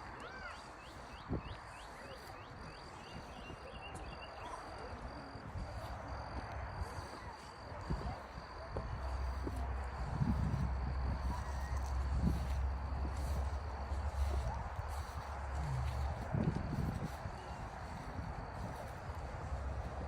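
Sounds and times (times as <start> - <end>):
low rumble: 9.1 - 20.0.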